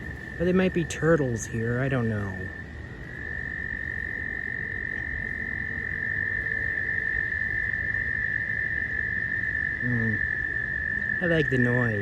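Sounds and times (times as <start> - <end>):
frogs calling: 0.0 - 12.0
wind rumble on microphone: 0.0 - 12.0.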